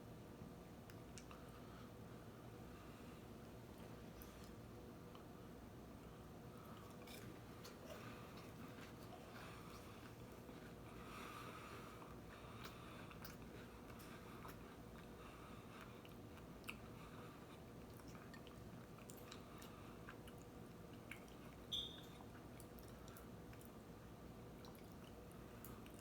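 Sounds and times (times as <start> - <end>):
faint chewing: 6.0 - 26.0.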